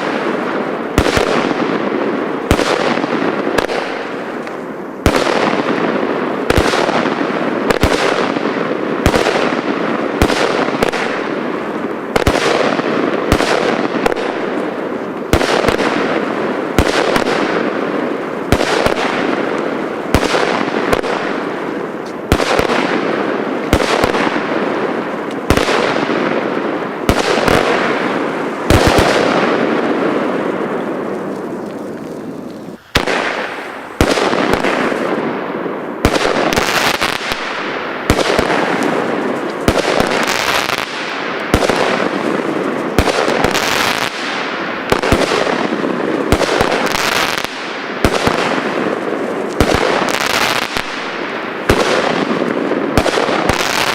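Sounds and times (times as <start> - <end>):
fireworks bangs: 0.0 - 53.9.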